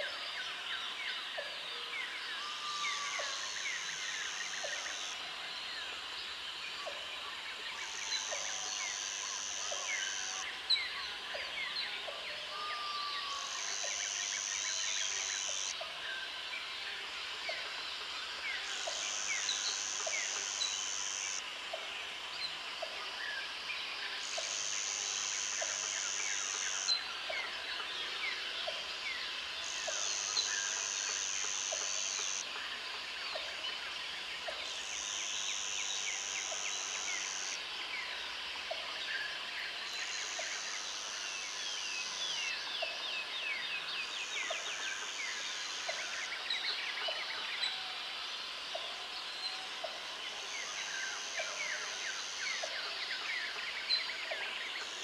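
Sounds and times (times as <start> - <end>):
insect buzzing: 18.7 - 21.4, 29.6 - 32.4.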